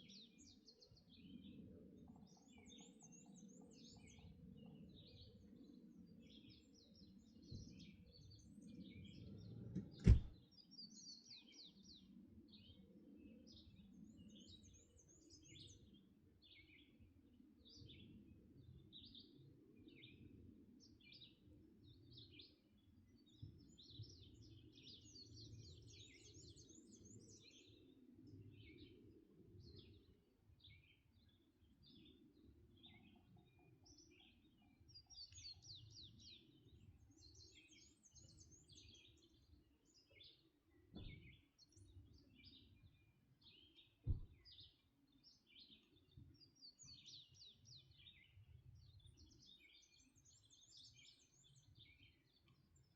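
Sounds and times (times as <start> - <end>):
songbirds singing and calling: 0.0 - 52.9
sharp thump: 9.8 - 10.4, 44.0 - 44.4.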